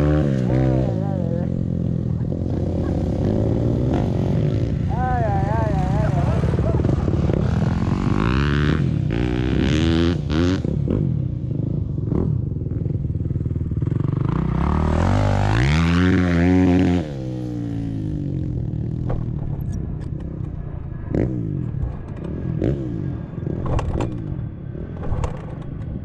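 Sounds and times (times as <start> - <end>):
dirt bike engine revving: 0.0 - 19.5.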